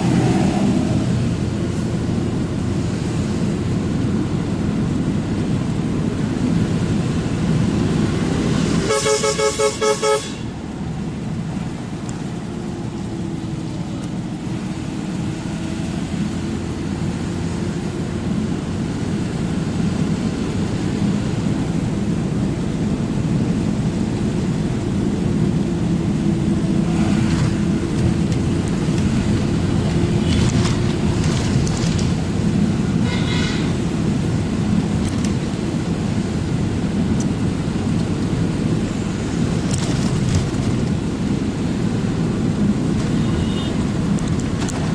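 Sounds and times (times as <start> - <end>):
truck engine and road drone: 0.0 - 44.9
vehicle horn short toots: 8.9 - 10.5, 33.0 - 33.8, 43.2 - 43.8.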